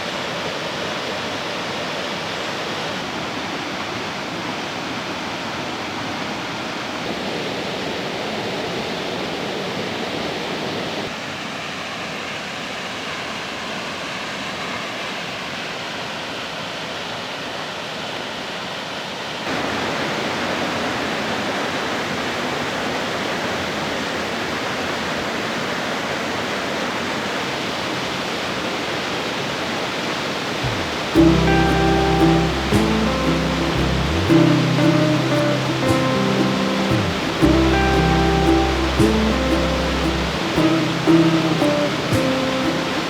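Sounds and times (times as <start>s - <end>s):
waterfall roaring: 30.2s - 43.0s.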